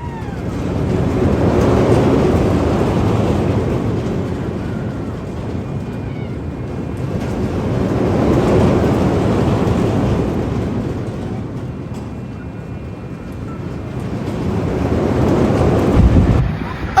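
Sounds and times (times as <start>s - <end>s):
roller coaster rumbling on track: 0.0s - 17.0s.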